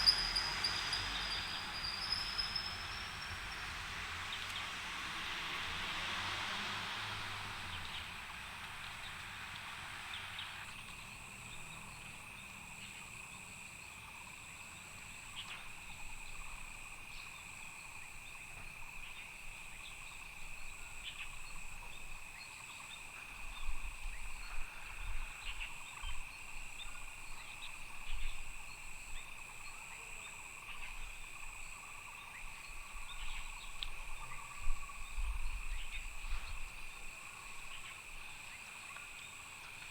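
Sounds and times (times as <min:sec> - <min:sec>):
passing vehicle rushing: 0:00.0 - 0:10.8
insects chirring: 0:00.0 - 0:20.9.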